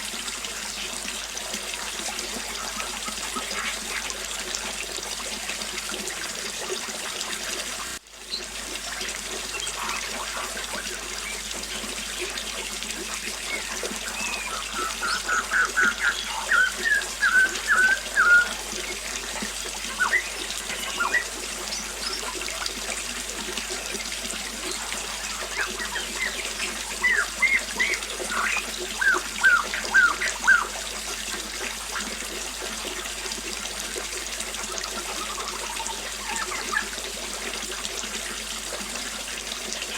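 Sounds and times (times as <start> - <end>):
small waterfall splashing: 0.0 - 39.9
birds chirping: 13.2 - 22.6, 23.6 - 30.8, 35.0 - 36.9.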